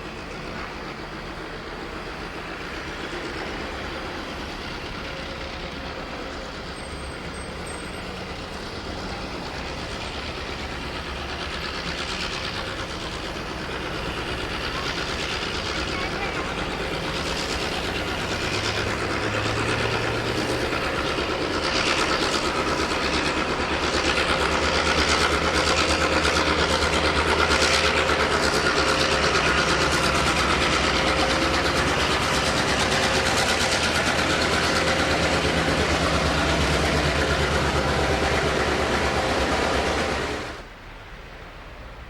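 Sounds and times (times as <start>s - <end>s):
diesel locomotive engine droning: 0.0s - 42.0s.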